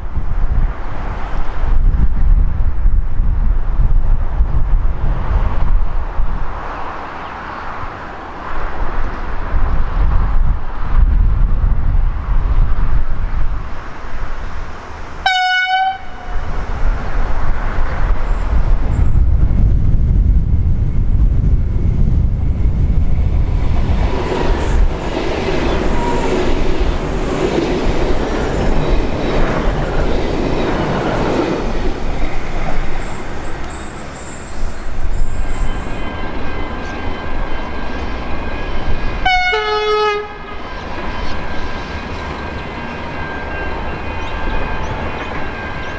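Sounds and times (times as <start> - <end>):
passenger train rumbling past: 0.0 - 45.9
train horn blasts: 15.2 - 16.5, 39.2 - 40.7.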